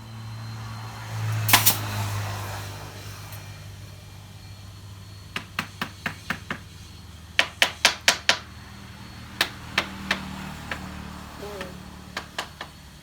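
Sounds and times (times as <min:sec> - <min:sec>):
hammer striking wood: 0:07.4 - 0:08.4, 0:09.4 - 0:10.9.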